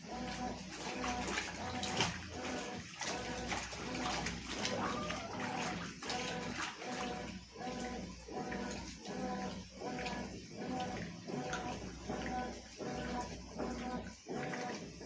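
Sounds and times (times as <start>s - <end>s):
washing machine motor whirring: 0.0s - 15.0s
water sloshing: 0.0s - 15.0s.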